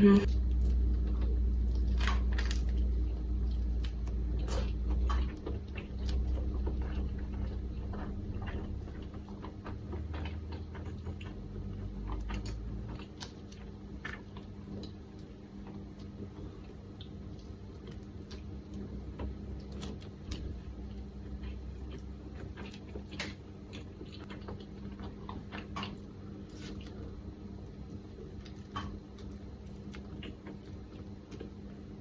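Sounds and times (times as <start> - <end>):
crisp chewing crunches: 0.3 - 31.6.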